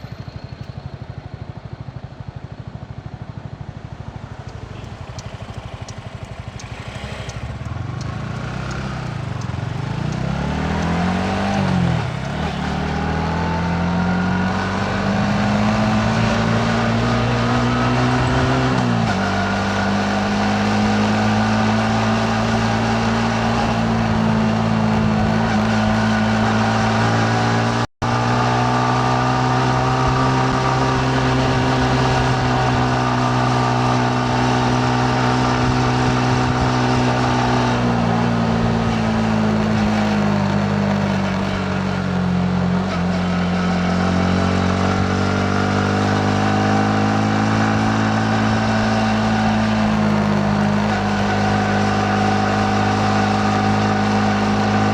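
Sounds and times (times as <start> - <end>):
motorcycle engine running: 0.0 - 54.9
wind and road rush: 0.0 - 54.9.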